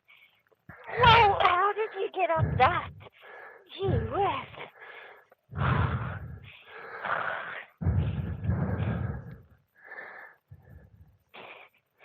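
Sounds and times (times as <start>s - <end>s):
person panting: 1.8s - 3.9s, 4.6s - 11.8s.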